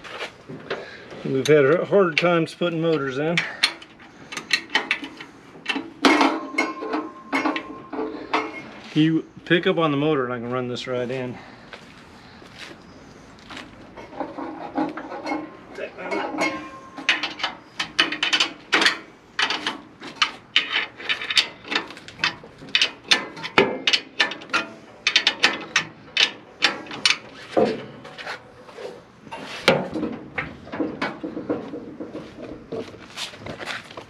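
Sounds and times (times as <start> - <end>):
metal parts knocking: 14.1 - 28.0.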